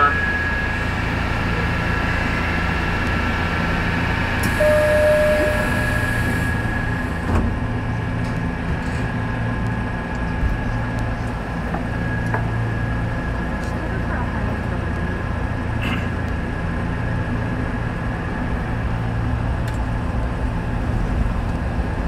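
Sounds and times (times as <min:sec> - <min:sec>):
electric train humming and whining: 0:00.0 - 0:22.0
short beep: 0:04.5 - 0:06.5.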